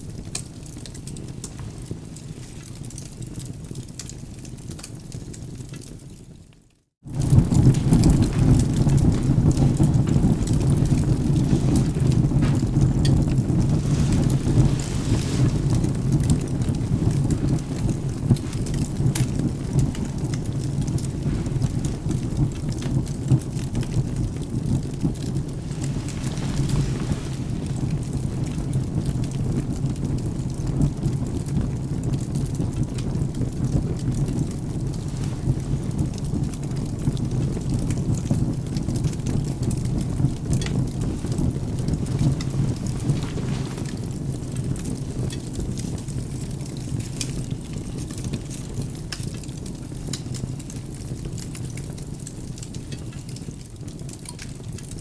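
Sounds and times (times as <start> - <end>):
steady rain: 0.0 - 55.0
wood fire crackling: 0.0 - 55.0
low thunder rumble: 7.1 - 46.1.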